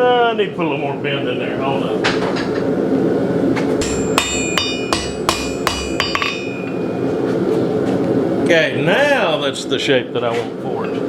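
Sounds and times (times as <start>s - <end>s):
hammer striking steel on anvil: 3.8s - 7.2s.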